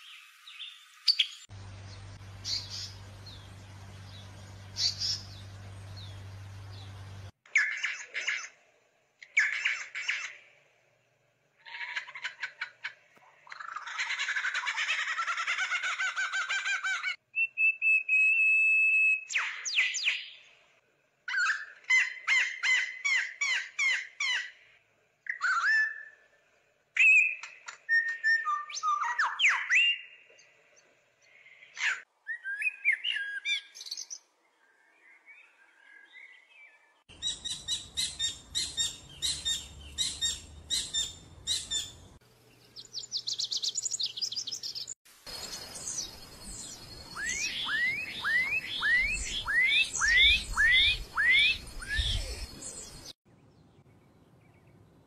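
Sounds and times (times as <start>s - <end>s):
bird chirps and trills: 0.0s - 8.6s, 35.1s - 54.7s
bird whistle: 17.4s - 20.3s, 45.9s - 52.9s
steady background hiss: 45.1s - 53.1s.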